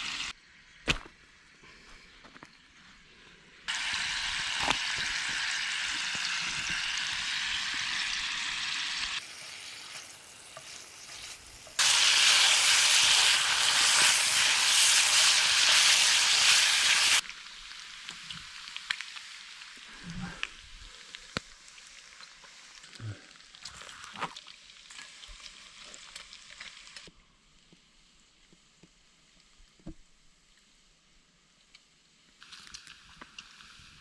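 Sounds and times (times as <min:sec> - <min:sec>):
food sizzling in a pan: 0:00.0 - 0:00.3, 0:03.7 - 0:27.6, 0:32.3 - 0:34.0.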